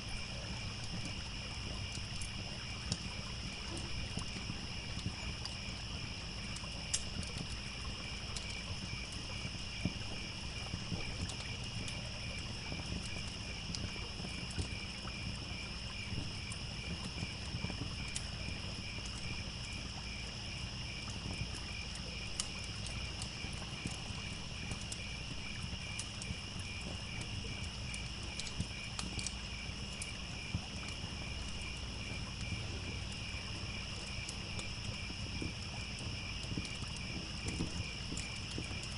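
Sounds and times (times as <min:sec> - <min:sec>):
continuous insect trill: 0:00.0 - 0:38.9
crackling wood fire: 0:00.0 - 0:38.9
crickets chirping: 0:00.0 - 0:38.9
trickling stream: 0:00.0 - 0:38.9.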